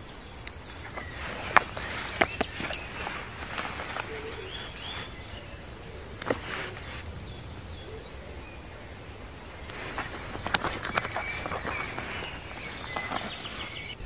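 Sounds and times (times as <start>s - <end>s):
birds chirping: 0.0s - 14.0s
handling of canvas roll: 0.7s - 5.5s, 6.1s - 7.2s, 9.4s - 14.0s.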